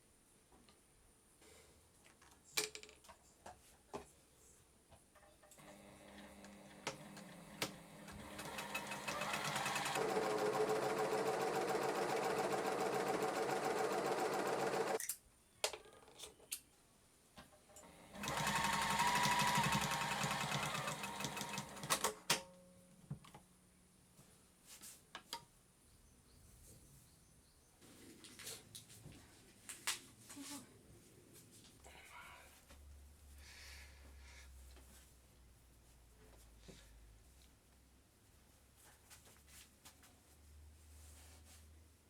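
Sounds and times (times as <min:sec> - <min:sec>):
sewing machine stitching: 0:05.6 - 0:15.0, 0:17.8 - 0:22.2.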